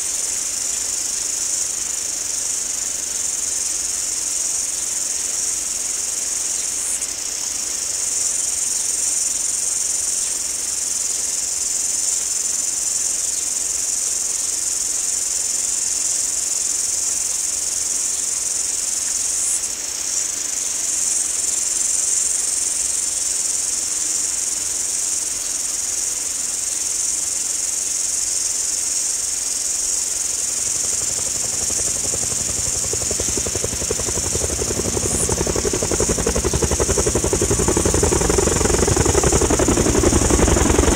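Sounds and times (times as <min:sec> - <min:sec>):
insects shrilling: 0:29.9 - 0:40.9.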